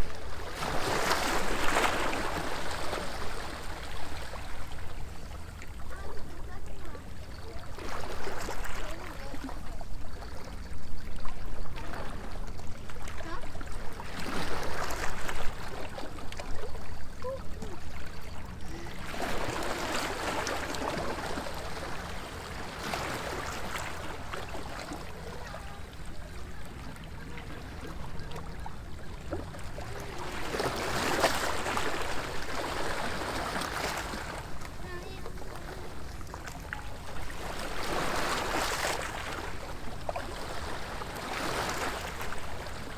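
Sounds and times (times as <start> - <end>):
waves washing against seawall: 29.3 - 42.9.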